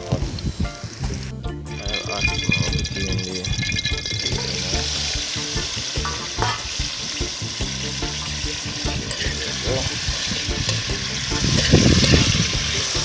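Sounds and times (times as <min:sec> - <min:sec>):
meat sizzling in hot oil: 0:00.4 - 0:13.0
knife scraping and knocking pot: 0:06.0 - 0:06.8.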